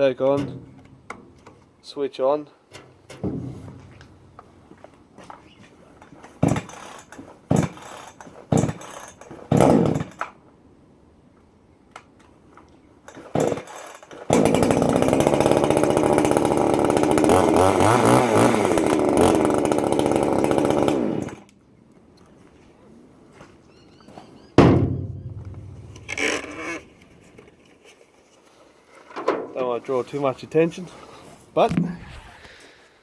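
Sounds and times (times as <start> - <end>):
chainsaw starter cord pulls: 6.3 - 10.3, 13.1 - 21.6, 25.4 - 27.5
chainsaw engine running: 13.4 - 21.5, 25.4 - 26.8.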